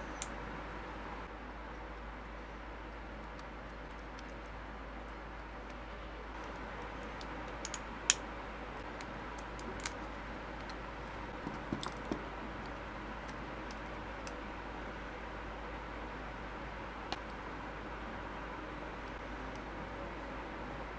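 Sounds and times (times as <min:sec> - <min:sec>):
steady background hiss: 0:00.0 - 0:03.2, 0:06.2 - 0:20.9
mouse and tool clicks: 0:07.2 - 0:08.2.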